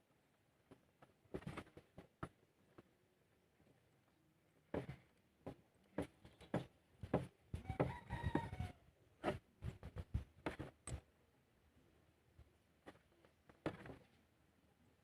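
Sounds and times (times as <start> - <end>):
rooster crowing: 7.6 - 8.8.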